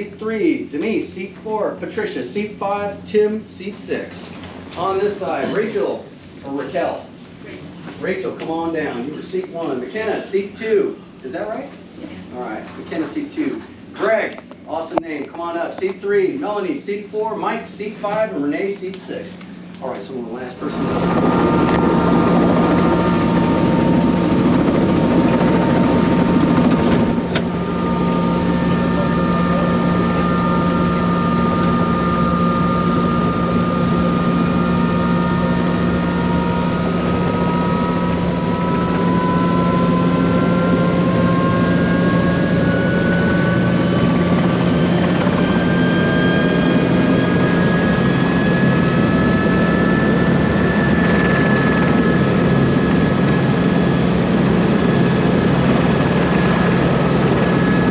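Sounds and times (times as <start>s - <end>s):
helicopter engine and rotor drone: 20.6s - 57.9s.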